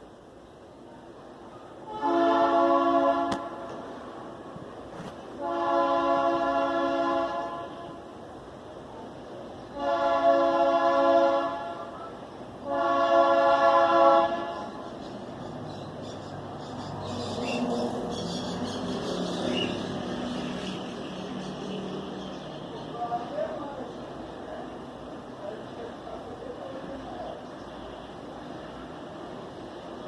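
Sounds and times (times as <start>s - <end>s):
locomotive air horn blasts: 1.8s - 4.0s, 5.4s - 8.1s, 9.7s - 12.0s, 12.6s - 14.8s.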